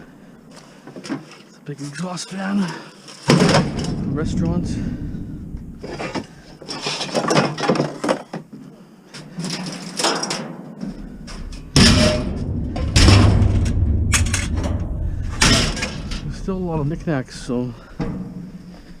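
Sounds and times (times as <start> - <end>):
scrap metal clanking: 2.1 - 8.3, 9.2 - 19.0
heavy metal bangs: 3.3 - 6.6, 10.8 - 18.8
low rumble: 3.6 - 6.6, 10.9 - 19.0.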